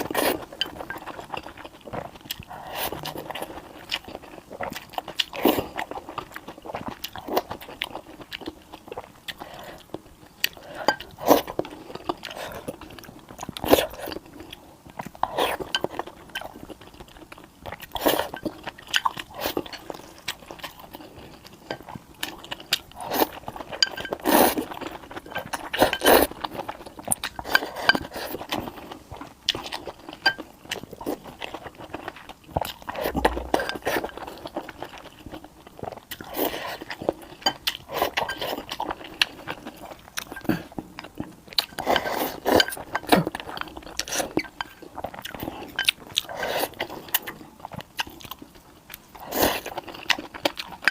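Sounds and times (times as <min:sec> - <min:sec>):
person biting and chewing food: 0:29.5 - 0:37.0.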